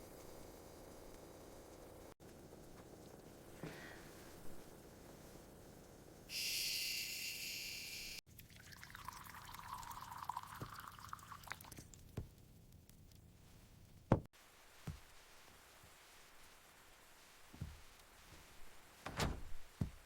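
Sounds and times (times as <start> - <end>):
steady high hiss: 2.9 - 8.2
liquid pouring into a cup: 8.3 - 11.9.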